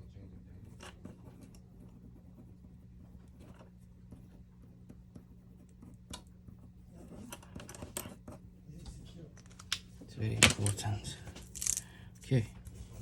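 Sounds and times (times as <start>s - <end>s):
low electrical hum: 0.0s - 13.0s
small tools clicking and scraping: 11.4s - 11.9s.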